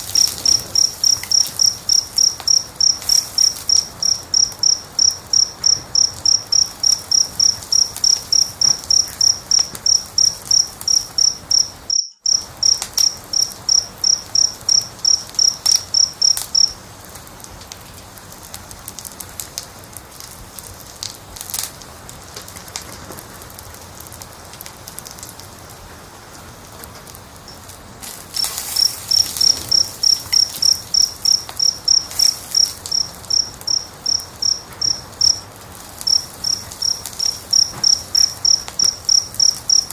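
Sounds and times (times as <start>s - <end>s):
cricket chirping: 0.0s - 16.9s, 27.4s - 39.9s
wood fire crackling: 0.0s - 39.9s.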